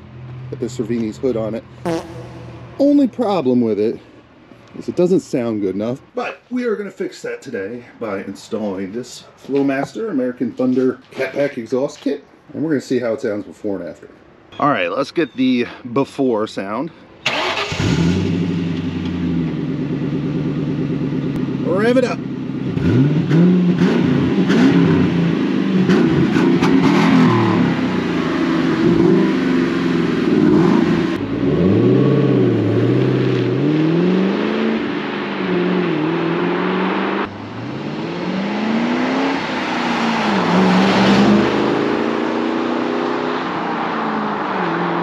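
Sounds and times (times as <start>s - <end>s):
car engine revving: 0.0s - 3.8s, 17.3s - 45.0s.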